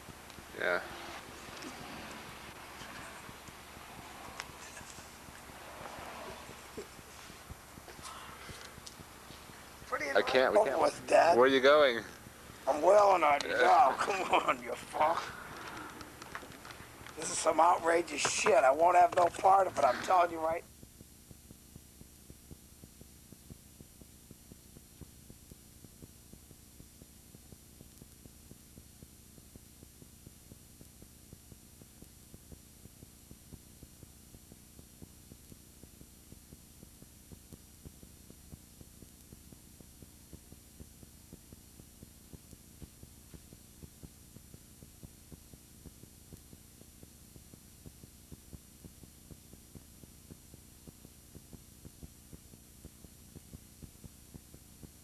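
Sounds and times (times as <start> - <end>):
electrical hum and hiss: 0.0 - 55.0.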